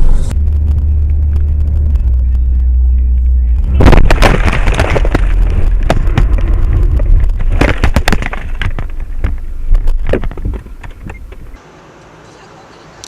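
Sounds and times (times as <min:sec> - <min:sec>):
car rumbling on the move: 0:00.0 - 0:11.6
sharp knocks and clatters: 0:03.8 - 0:11.6.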